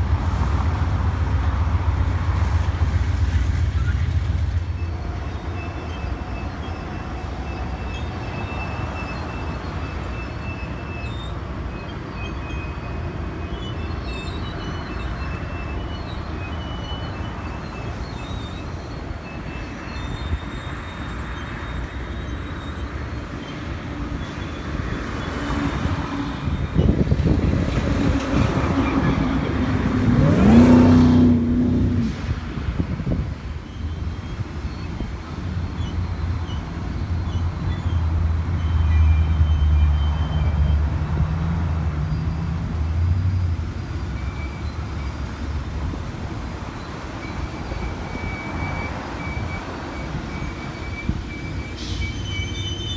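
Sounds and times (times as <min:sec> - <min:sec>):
diesel locomotive rumbling: 0:00.0 - 0:52.9.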